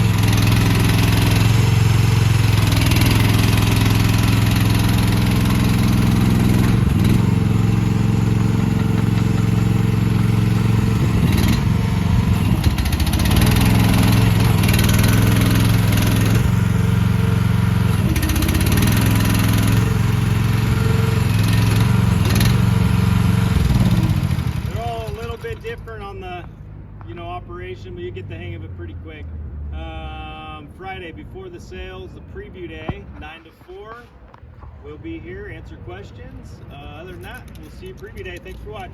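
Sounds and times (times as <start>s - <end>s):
excavator engine under load: 0.0s - 26.2s, 36.8s - 38.9s.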